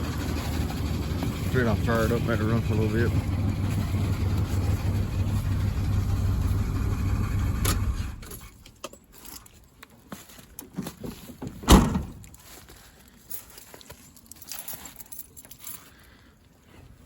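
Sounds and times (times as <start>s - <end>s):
truck engine idling: 0.0s - 8.3s
loud thump: 11.7s - 12.2s.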